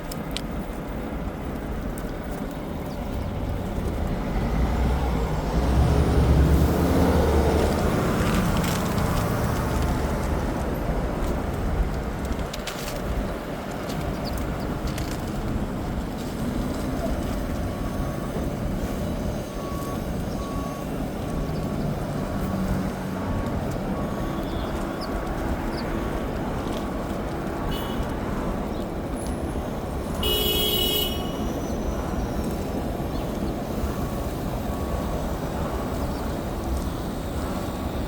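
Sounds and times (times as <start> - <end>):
street traffic rumbling: 0.0 - 38.0
truck reversing alarm beeping: 16.4 - 26.2, 30.2 - 38.0
vehicle horn: 27.7 - 28.1, 30.2 - 31.7.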